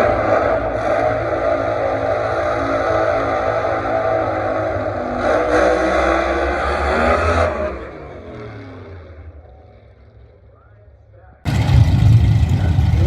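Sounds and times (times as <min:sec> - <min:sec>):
race car engine revving: 0:00.0 - 0:09.4, 0:11.5 - 0:13.0.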